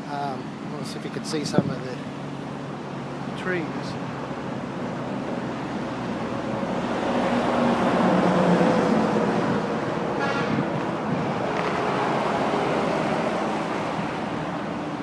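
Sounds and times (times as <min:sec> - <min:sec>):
motorcycle road noise: 0:00.0 - 0:15.0
wind rush: 0:06.0 - 0:14.8.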